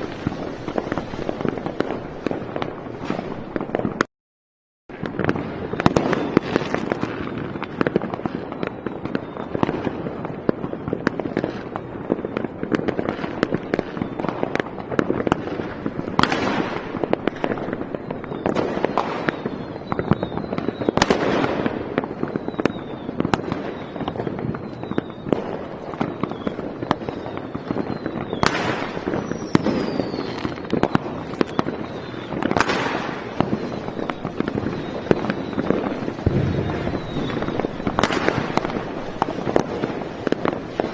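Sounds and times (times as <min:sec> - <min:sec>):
fireworks crackling and popping: 0:00.0 - 0:04.1, 0:04.9 - 0:40.9
loud firework bangs: 0:00.0 - 0:04.1, 0:04.9 - 0:40.9
faint falling whistles: 0:17.3 - 0:21.1, 0:22.2 - 0:39.0.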